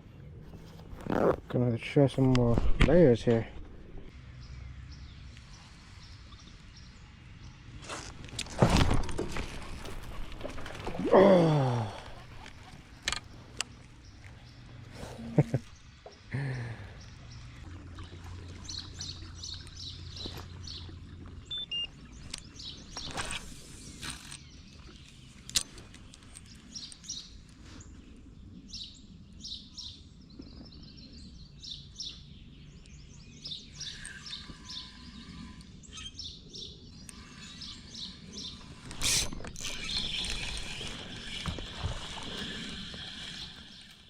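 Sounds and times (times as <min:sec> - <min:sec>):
birds chirping and singing: 0:08.7 - 0:44.0
water sloshing: 0:17.0 - 0:23.2.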